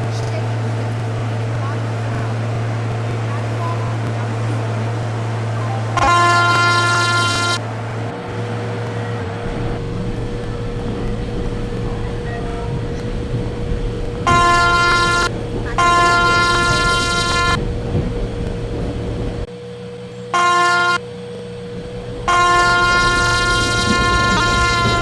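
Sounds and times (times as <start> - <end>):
low rumble: 0.0 - 19.5, 21.3 - 25.0
train horn blasts: 1.2 - 18.0, 20.2 - 25.0.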